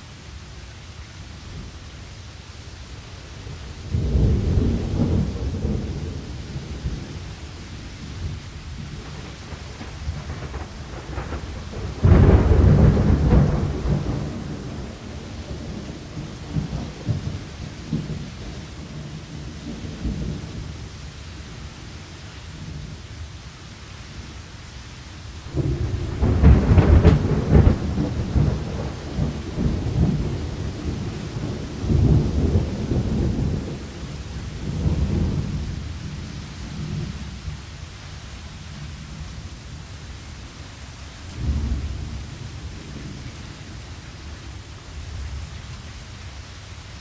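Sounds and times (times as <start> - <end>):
steady rain: 0.0 - 47.0
rolling thunder: 3.9 - 20.7, 25.5 - 37.6, 41.4 - 44.5.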